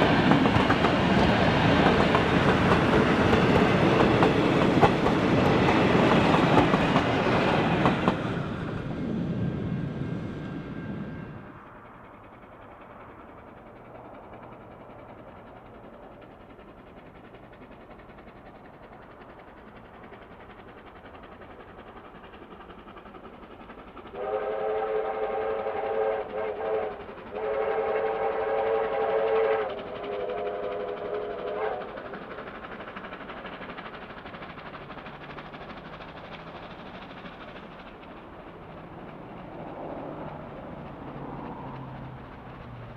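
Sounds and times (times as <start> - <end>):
train running noise: 0.0 - 42.9
steam locomotive whistle blasts: 24.1 - 32.0.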